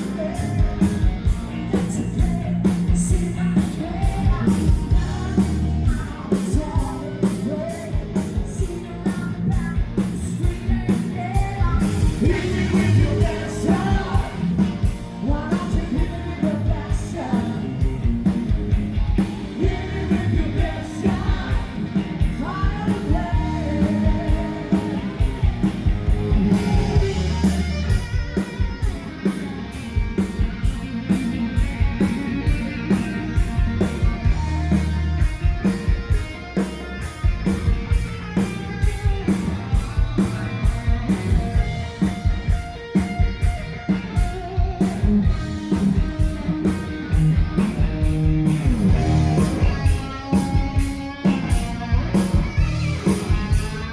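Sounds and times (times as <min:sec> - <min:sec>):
person singing: 0:00.0 - 0:01.1, 0:01.7 - 0:17.9, 0:19.6 - 0:25.7
driving drum beat: 0:00.0 - 0:53.9
live rock band playing: 0:00.0 - 0:53.9.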